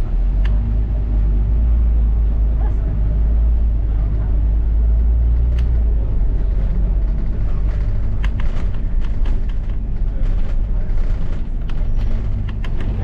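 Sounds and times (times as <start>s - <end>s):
bus engine and road rumble: 0.0s - 13.0s
sharp rattles or clicks: 6.5s - 13.0s.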